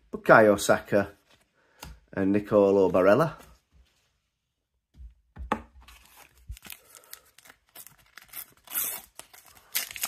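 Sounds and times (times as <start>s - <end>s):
wrapper crinkling: 5.9s - 10.0s
sticker packet tearing: 6.0s - 10.0s.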